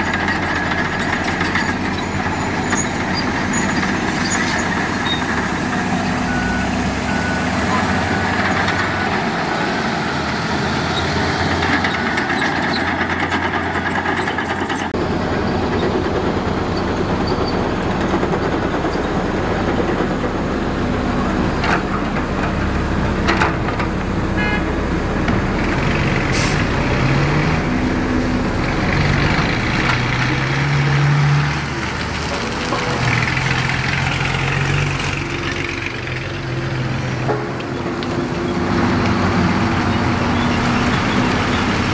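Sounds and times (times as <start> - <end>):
heavy diesel machinery running: 0.0 - 41.9.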